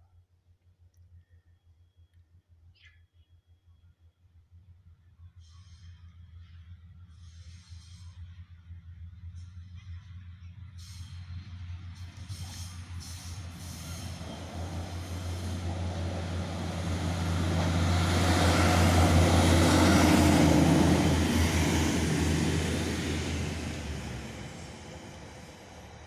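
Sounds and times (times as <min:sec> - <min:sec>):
train rushing past: 0:07.4 - 0:26.0.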